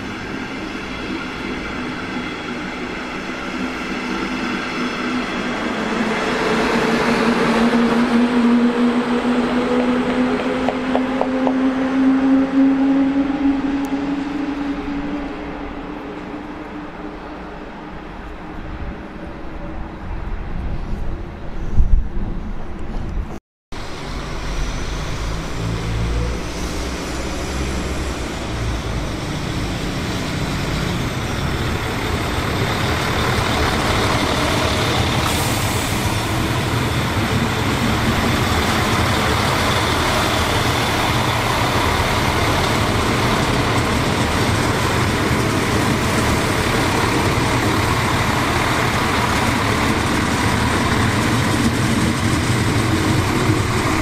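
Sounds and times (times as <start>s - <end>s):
low drone: 0.0s - 19.9s
train rushing past: 0.0s - 22.4s, 23.8s - 54.0s.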